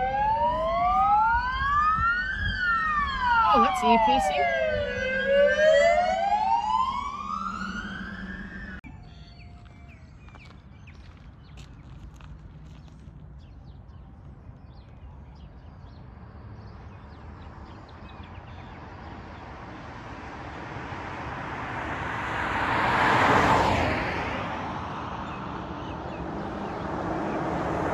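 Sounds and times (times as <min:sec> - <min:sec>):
vehicle passing by: 0:03.2 - 0:08.8, 0:18.9 - 0:27.9.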